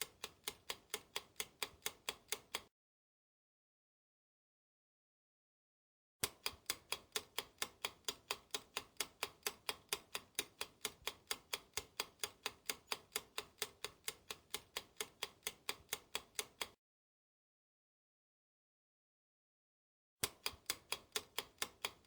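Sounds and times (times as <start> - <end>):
rapid clock-like ticking: 0.0 - 2.7, 6.2 - 16.8, 20.2 - 22.0.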